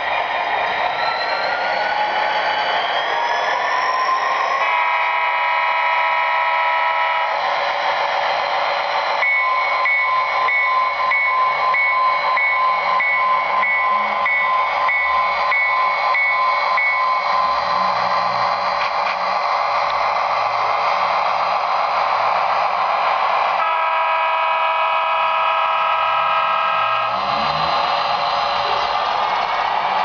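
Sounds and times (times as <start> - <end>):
model diesel engine sound: 0.0 - 30.0
locomotive horn chord: 4.6 - 7.4, 23.6 - 27.3
locomotive bell ringing: 9.2 - 17.5.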